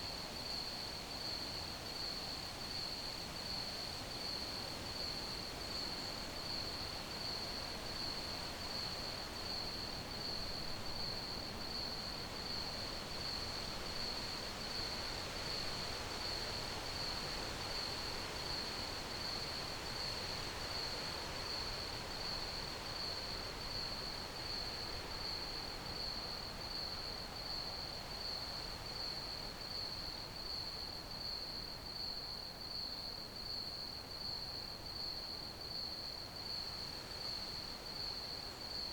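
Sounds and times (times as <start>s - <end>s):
crickets chirping: 32.0s - 38.9s.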